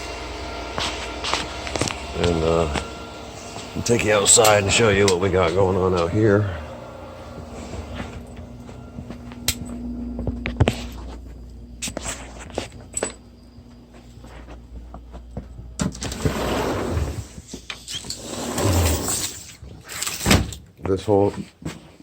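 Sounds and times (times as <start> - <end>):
steady hum: 0.0 - 20.4
footsteps: 0.6 - 18.0.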